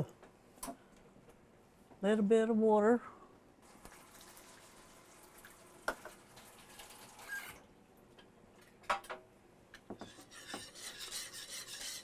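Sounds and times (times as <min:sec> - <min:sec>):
whisk stirring in a skillet: 0:10.0 - 0:12.0.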